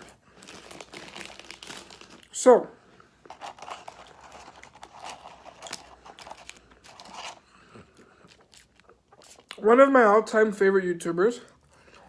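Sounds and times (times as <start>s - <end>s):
paper wrapper crinkling: 0.0s - 2.4s, 3.2s - 7.5s
food being chewed: 3.2s - 9.6s, 11.5s - 12.0s.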